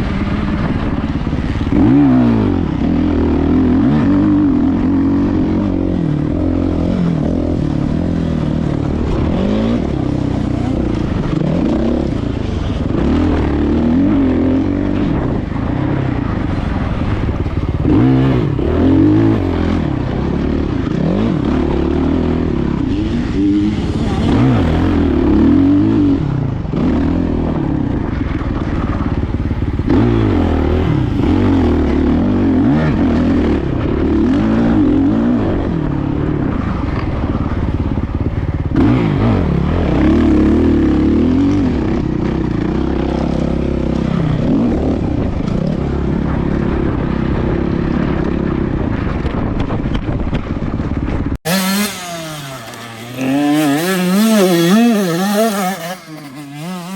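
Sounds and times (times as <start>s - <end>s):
dirt bike engine revving: 0.0s - 49.1s, 51.4s - 56.9s.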